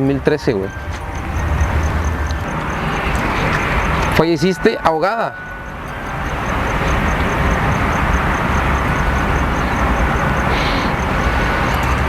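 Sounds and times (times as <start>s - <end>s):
faint high ticking: 0.0s - 12.0s
passing vehicle rumble: 0.0s - 12.0s.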